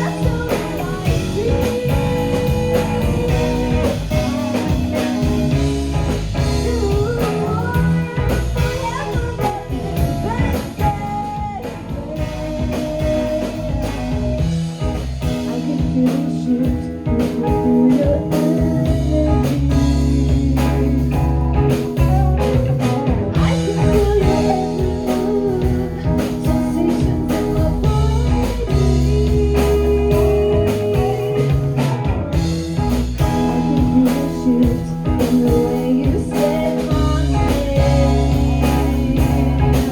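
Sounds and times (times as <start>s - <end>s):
electric guitar lines: 0.0s - 39.9s
live rock band playing blues: 0.0s - 39.9s.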